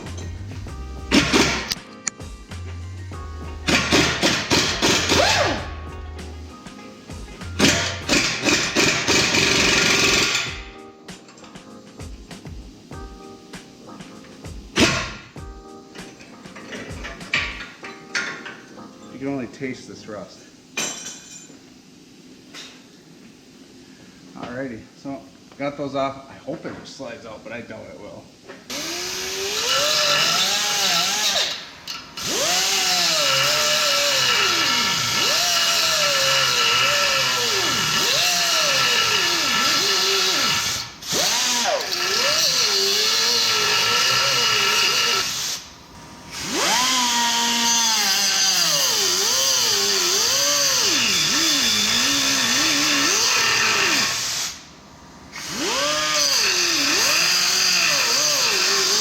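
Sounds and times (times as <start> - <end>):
power tool motor: 7.6 - 10.6, 28.7 - 45.7, 46.3 - 54.6, 55.4 - 59.0.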